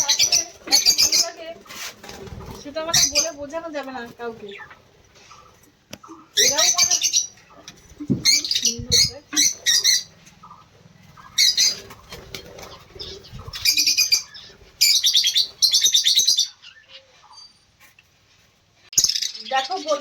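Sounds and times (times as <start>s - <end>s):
birds chattering calls: 0.0s - 18.2s, 18.9s - 20.0s
wings flapping: 0.1s - 5.6s, 10.4s - 15.6s.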